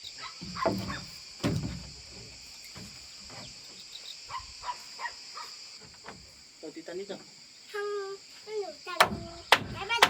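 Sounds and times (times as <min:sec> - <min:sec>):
loud knocks: 0:00.4 - 0:02.1, 0:09.0 - 0:10.0.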